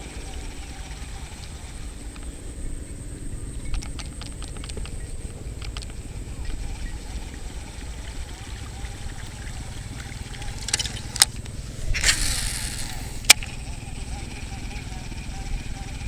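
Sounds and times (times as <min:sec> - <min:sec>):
sharp clicks: 0:03.7 - 0:06.6, 0:10.0 - 0:13.6.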